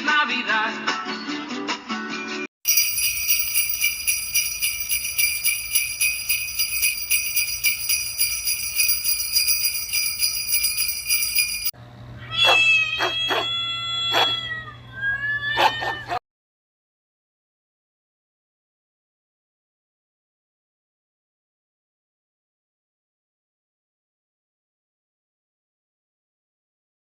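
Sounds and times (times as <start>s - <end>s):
jingle bells shaking: 2.7s - 11.7s
high meow-like animal cries: 12.2s - 16.2s.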